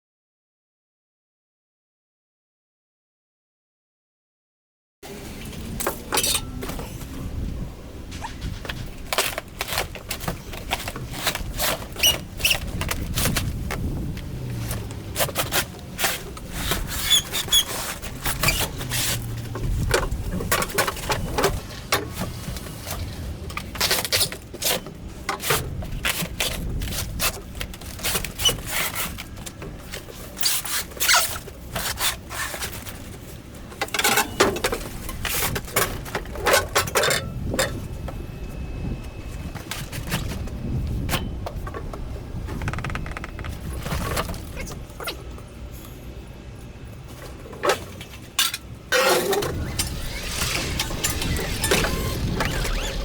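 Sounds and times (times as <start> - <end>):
boxes scraping and squeaking: 5.1 - 41.3, 42.4 - 46.1, 47.0 - 53.0
low rumble: 49.3 - 53.0.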